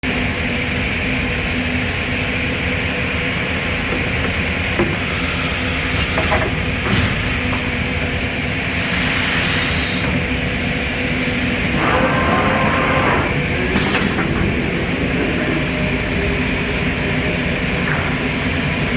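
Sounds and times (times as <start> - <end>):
compressed air hisses: 8.5 - 11.1.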